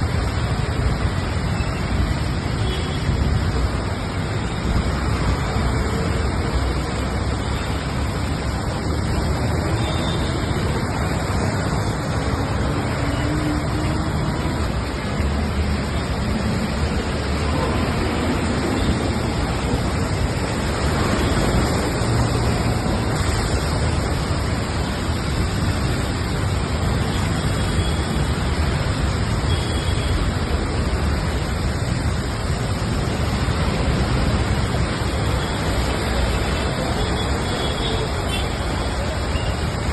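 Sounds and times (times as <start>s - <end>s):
heavy rain: 0.0s - 39.9s
road traffic: 0.0s - 39.9s.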